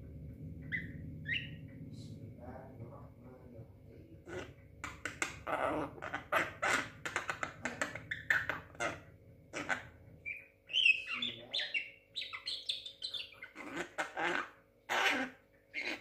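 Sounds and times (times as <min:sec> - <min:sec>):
squeaky whistles and chirps: 0:00.6 - 0:01.6, 0:10.2 - 0:13.6
myna chattering calls: 0:09.6 - 0:16.0.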